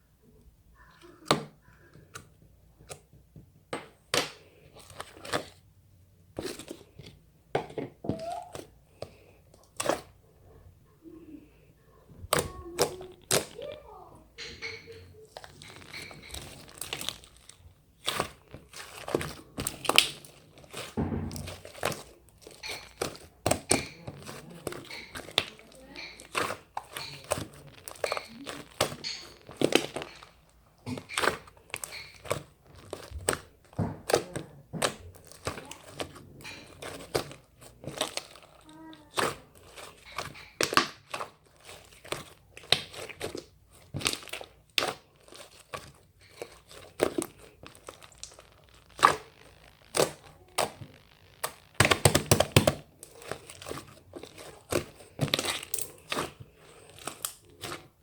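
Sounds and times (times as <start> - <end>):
slime crackling when squeezed: 12.3 - 58.0.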